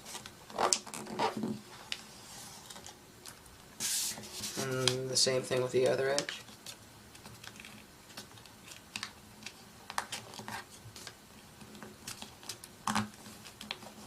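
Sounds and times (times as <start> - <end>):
paper crinkling and folding: 3.8 - 14.0.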